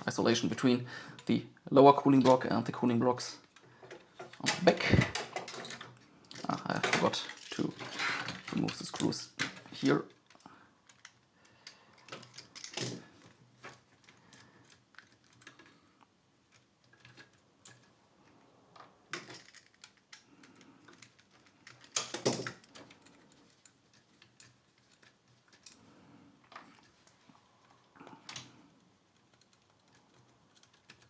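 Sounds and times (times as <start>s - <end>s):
screwdriver and screws clicking: 29.2s - 31.0s.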